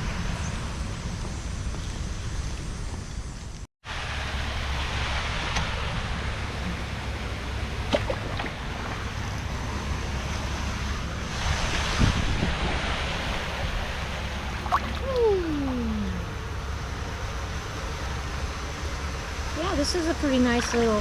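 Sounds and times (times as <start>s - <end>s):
wind buffeting microphone: 6.1s - 21.0s.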